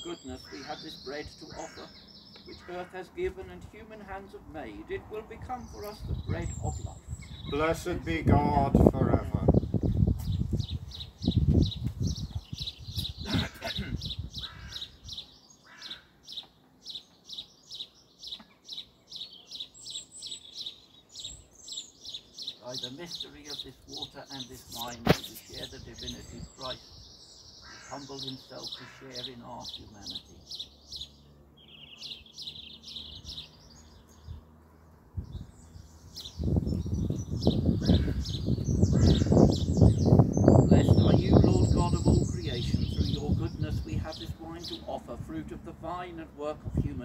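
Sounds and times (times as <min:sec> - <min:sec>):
higher bird call: 0:00.0 - 0:03.1, 0:13.0 - 0:17.1, 0:27.5 - 0:31.1, 0:37.8 - 0:40.1
songbirds chirping: 0:00.0 - 0:47.0.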